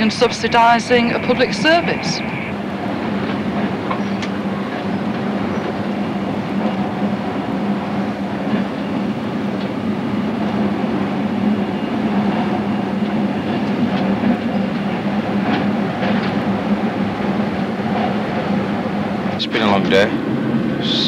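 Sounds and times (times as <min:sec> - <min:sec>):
train running rumble: 0:00.0 - 0:21.0
faint clicks from rails: 0:03.2 - 0:05.8, 0:09.5 - 0:09.8, 0:12.3 - 0:16.5.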